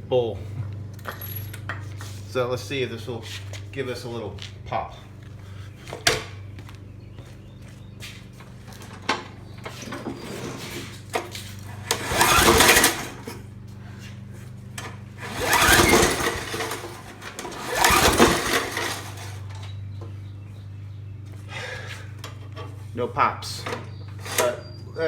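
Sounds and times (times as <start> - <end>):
recoil starter whirring: 8.3 - 25.0.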